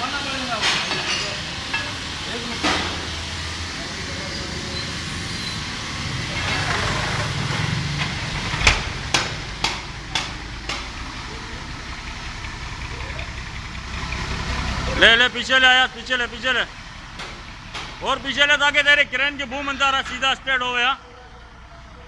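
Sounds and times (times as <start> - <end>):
truck engine running at low revs: 0.0 - 22.0
sharp knocks: 6.6 - 11.3, 17.1 - 18.2.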